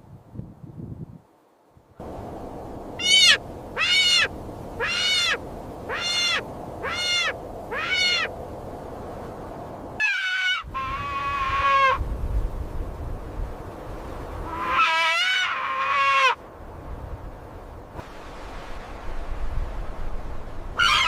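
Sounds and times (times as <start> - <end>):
animal calling: 3.0 - 8.3, 10.0 - 12.0, 14.5 - 16.4.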